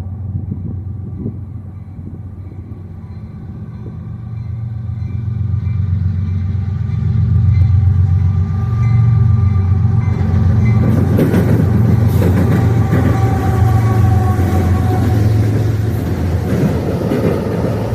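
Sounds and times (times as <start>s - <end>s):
diesel locomotive engine drone: 0.0s - 17.9s
train wheels clattering on rails: 3.8s - 17.9s.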